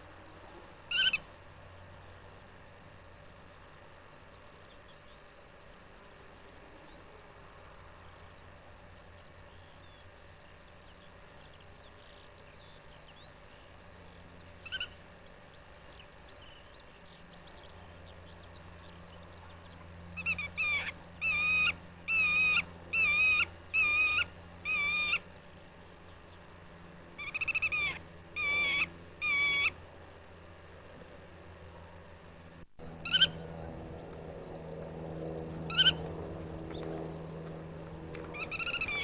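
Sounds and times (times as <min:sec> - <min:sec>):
faint bird twittering: 0:00.6 - 0:30.4, 0:32.8 - 0:39.0
bird calling loudly: 0:00.9 - 0:01.3, 0:20.2 - 0:25.3, 0:27.2 - 0:29.8, 0:33.0 - 0:33.8, 0:35.6 - 0:36.9, 0:38.1 - 0:39.0.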